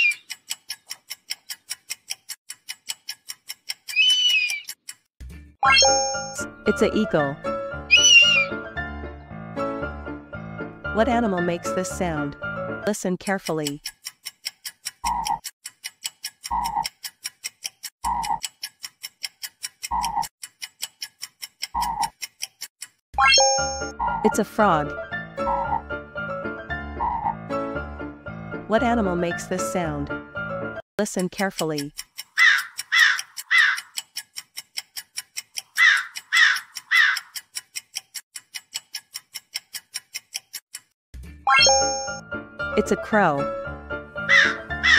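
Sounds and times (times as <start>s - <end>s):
fast clock ticking: 0.0s - 5.1s, 11.0s - 25.8s, 31.0s - 41.0s, 42.8s - 43.4s, 44.3s - 44.9s
crow cawing: 7.9s - 8.5s, 32.4s - 34.0s, 35.8s - 37.4s, 44.3s - 44.9s
frog croaking: 44.3s - 44.9s.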